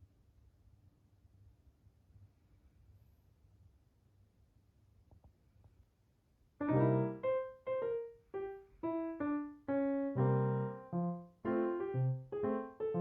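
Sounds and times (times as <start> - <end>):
piano playing light tune: 6.6 - 13.0.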